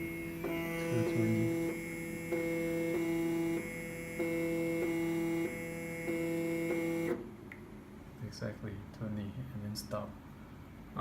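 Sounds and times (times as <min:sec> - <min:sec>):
stepper motor whining: 0:00.0 - 0:07.2.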